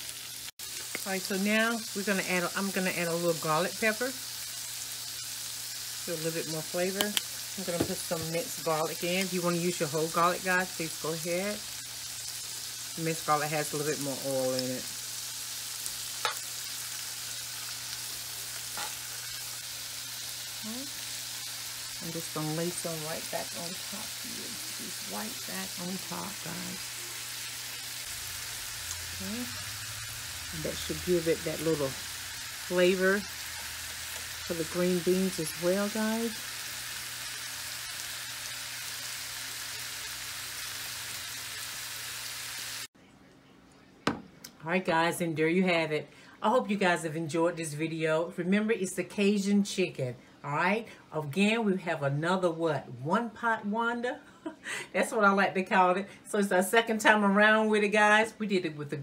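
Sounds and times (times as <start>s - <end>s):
vegetables sizzling in a pan: 0.0s - 42.9s.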